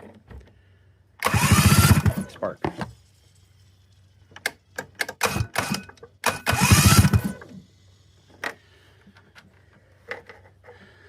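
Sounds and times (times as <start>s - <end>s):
snowmobile engine cranking: 1.2s - 2.5s, 4.8s - 8.5s.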